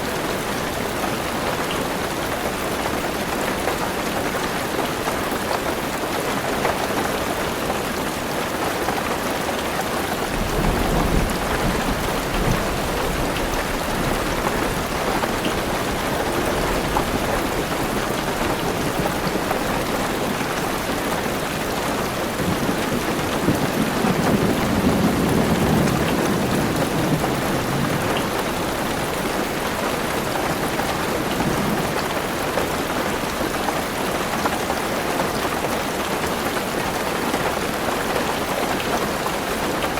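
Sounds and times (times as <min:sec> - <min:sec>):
heavy rain on a car roof: 0:00.0 - 0:39.9
rolling thunder: 0:10.2 - 0:20.0, 0:22.3 - 0:28.6.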